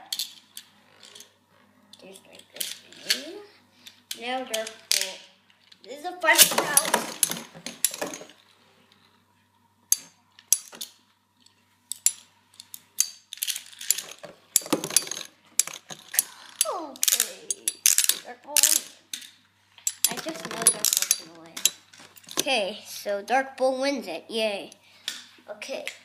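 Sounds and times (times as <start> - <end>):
spinning tops clattering: 19.9 - 22.3.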